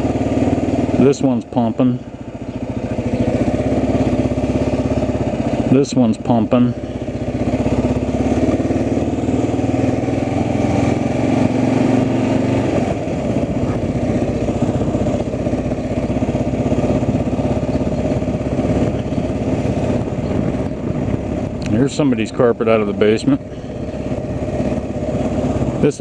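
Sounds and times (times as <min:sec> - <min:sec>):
vehicle engine running at low speed: 0:00.0 - 0:26.0.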